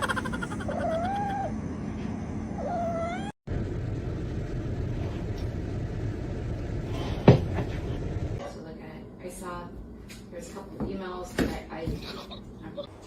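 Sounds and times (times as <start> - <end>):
steady low rumble: 0.0 - 10.4
cat meowing: 2.6 - 3.4.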